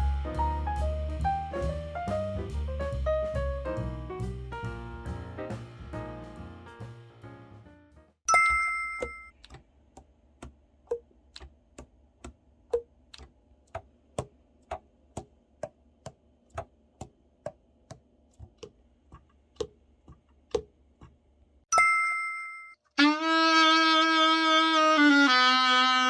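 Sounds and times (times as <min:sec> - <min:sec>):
bright bell-like ding: 0:08.3 - 0:09.3, 0:21.7 - 0:22.8.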